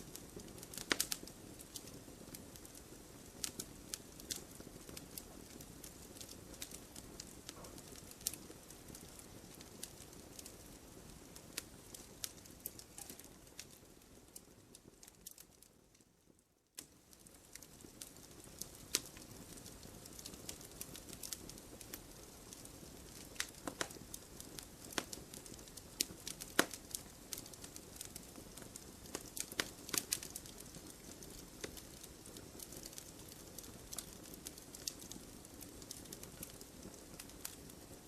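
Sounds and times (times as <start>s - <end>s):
low rumble of burning: 0.0s - 38.0s
wood fire crackling: 0.0s - 38.0s.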